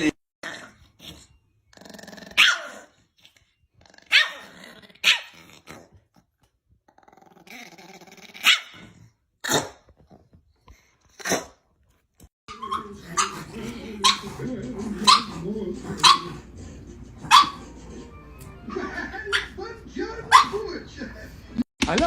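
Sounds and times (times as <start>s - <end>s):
dog growling: 0.4s - 11.6s, 12.5s - 21.6s
dog barking: 2.4s - 2.9s, 4.1s - 4.4s, 5.0s - 5.4s, 8.4s - 8.8s, 12.5s - 14.4s, 15.0s - 16.5s, 17.2s - 17.7s, 19.2s - 19.6s, 20.2s - 20.7s.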